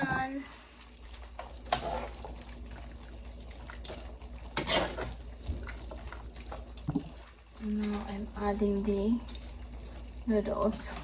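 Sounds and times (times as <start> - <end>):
liquid sloshing in a pan: 0.0 - 11.0.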